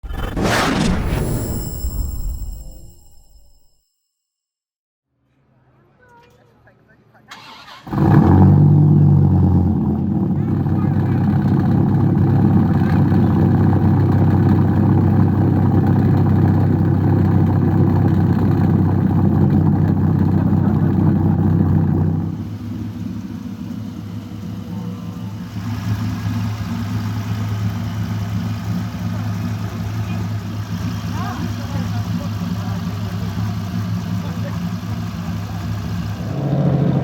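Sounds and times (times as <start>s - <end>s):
car engine running loud: 7.9s - 37.0s.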